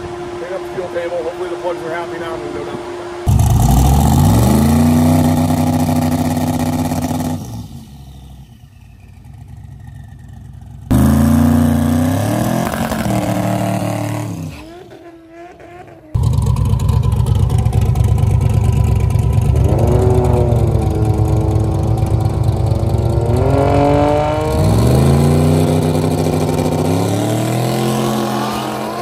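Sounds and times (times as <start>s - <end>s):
car engine revving: 0.0s - 9.6s, 10.2s - 29.0s.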